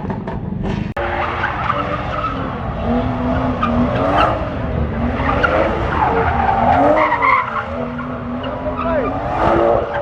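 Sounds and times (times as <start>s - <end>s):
car engine revving: 0.2s - 10.0s.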